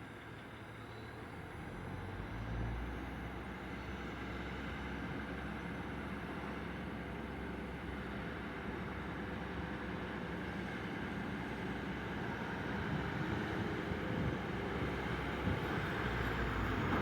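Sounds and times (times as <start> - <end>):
diesel train engine rumbling: 11.0 - 17.0.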